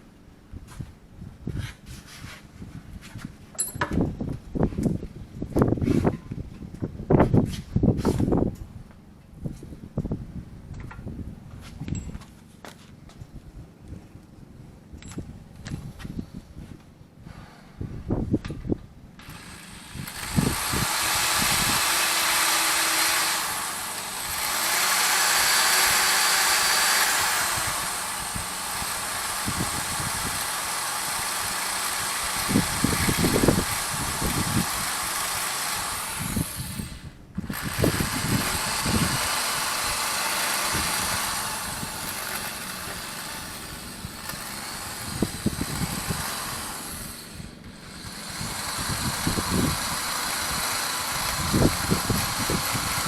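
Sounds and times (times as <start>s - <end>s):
rotary grinding tool whine: 19.2s - 53.0s.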